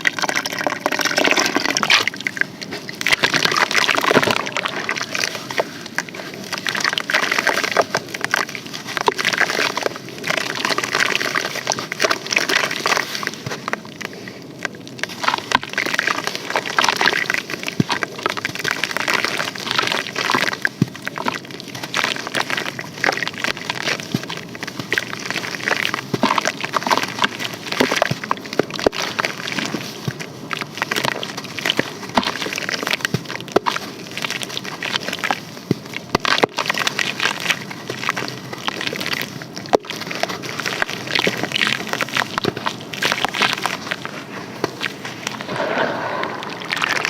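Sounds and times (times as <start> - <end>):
sand crumbling in water crackling: 0.0 - 47.0
wet wash of water: 45.2 - 47.0.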